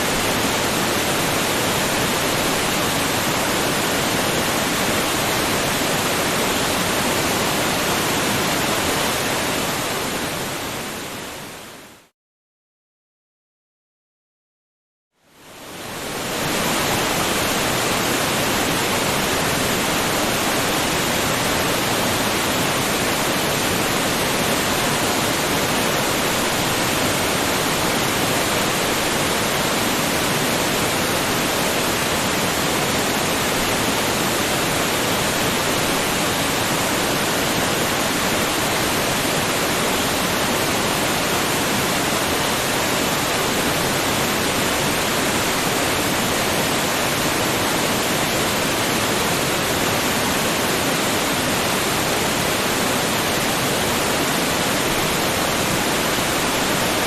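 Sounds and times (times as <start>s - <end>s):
waterfall rushing: 0.0s - 11.5s, 15.6s - 57.0s.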